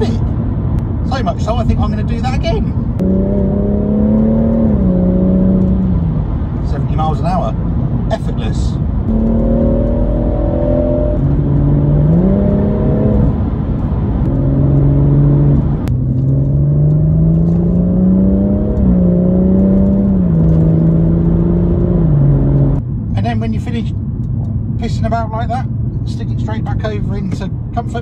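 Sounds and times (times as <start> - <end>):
car engine revving through gear changes: 2.9 - 6.8, 9.1 - 22.8.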